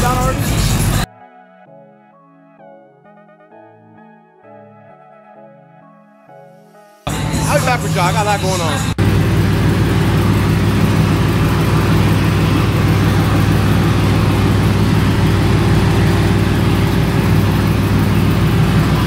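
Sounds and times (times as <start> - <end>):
car engine idling: 0.0 - 1.1, 7.1 - 19.0.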